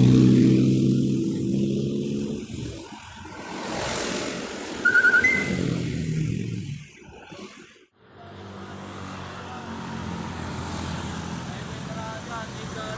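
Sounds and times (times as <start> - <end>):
vehicle engines passing: 0.0 - 6.9, 8.1 - 12.9
brief high trill: 4.8 - 5.8
short high tone: 4.8 - 5.8.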